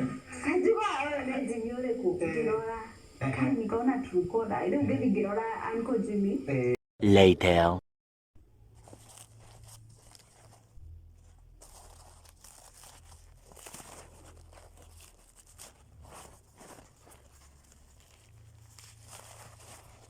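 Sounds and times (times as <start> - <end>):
low steady hum: 8.4 - 20.0
faint rustling and crinkling: 8.6 - 20.0.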